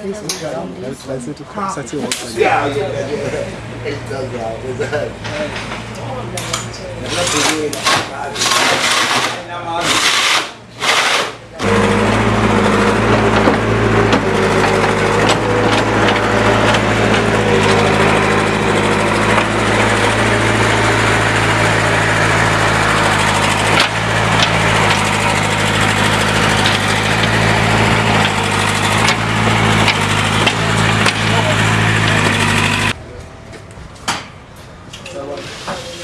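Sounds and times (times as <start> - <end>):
small engine running steadily: 10.2 - 33.0.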